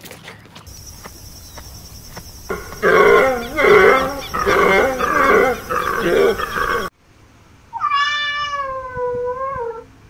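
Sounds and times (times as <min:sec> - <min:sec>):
deer stag bellowing: 0:00.8 - 0:06.9.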